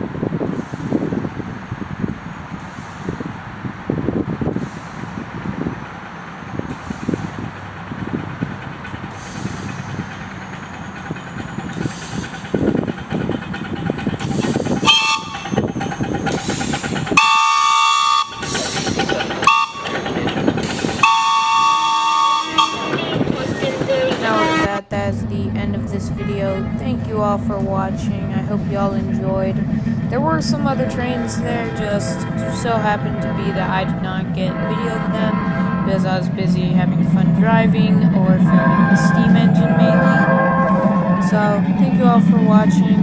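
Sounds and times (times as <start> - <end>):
miniature train rumbling on track: 0.0 - 43.0
train multi-note chime: 5.6 - 24.8, 30.1 - 43.0.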